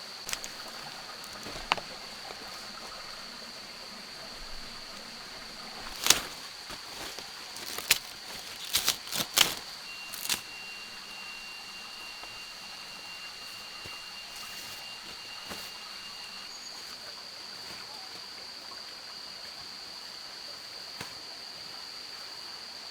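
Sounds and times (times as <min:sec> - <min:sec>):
high-pitched insect drone: 0:00.0 - 0:19.4
thin tone: 0:07.6 - 0:16.7.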